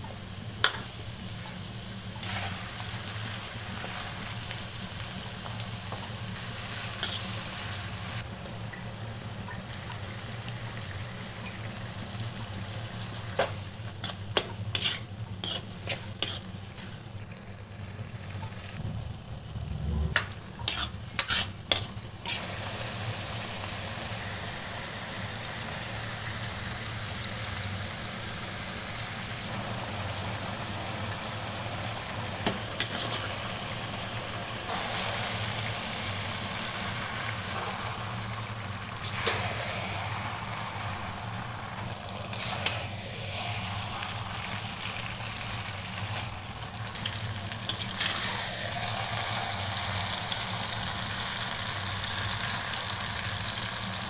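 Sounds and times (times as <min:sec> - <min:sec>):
onions sizzling in hot oil: 0:00.0 - 0:54.0
metal spatula scraping a pan: 0:06.7 - 0:07.4, 0:13.4 - 0:17.0, 0:20.1 - 0:22.5, 0:32.8 - 0:33.3.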